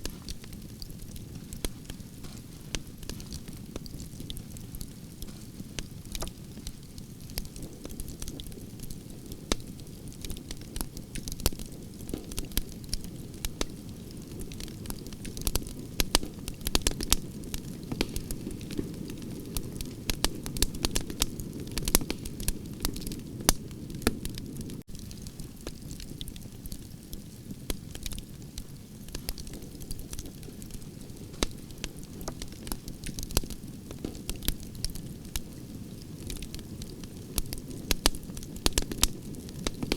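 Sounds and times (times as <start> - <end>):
campfire crackling and popping: 0.0 - 39.9
low rush of flames: 0.0 - 39.9.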